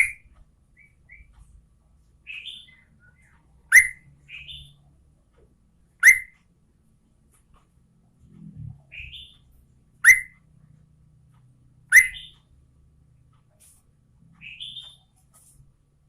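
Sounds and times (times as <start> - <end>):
bird calling in sharp notes: 2.2 - 4.8, 6.0 - 6.4, 8.9 - 10.4, 11.8 - 12.5, 14.4 - 15.1.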